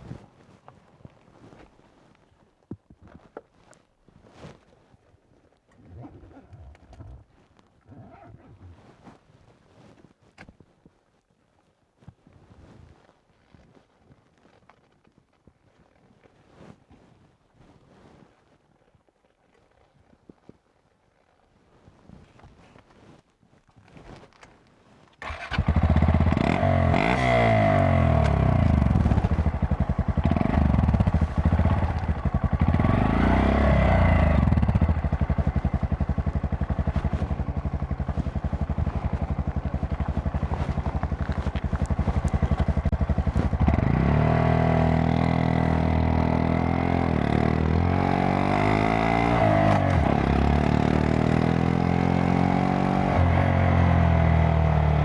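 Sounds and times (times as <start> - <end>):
motorcycle engine revving: 25.2 - 55.0.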